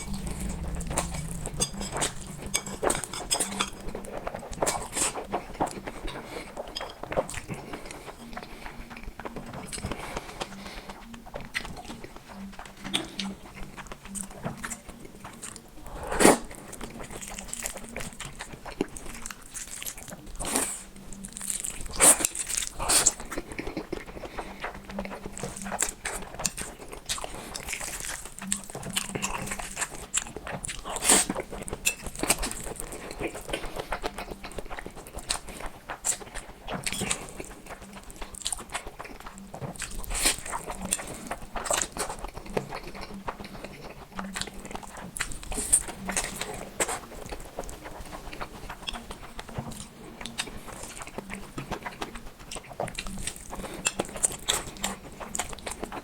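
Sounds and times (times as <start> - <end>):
chewing with wet mouth clicks: 0.0 - 56.0
noodles slurped: 15.8 - 19.0.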